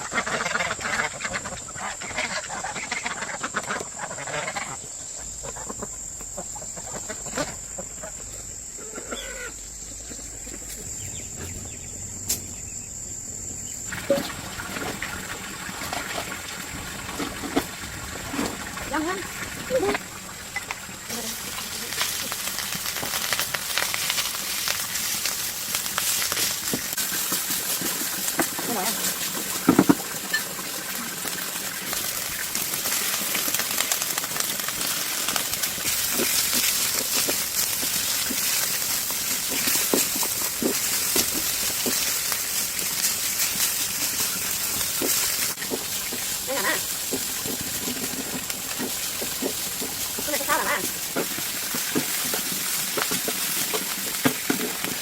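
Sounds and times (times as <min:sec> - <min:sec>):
water trickling and splashing: 0:13.8 - 0:22.9, 0:23.6 - 0:55.0
rain falling: 0:13.8 - 0:55.0.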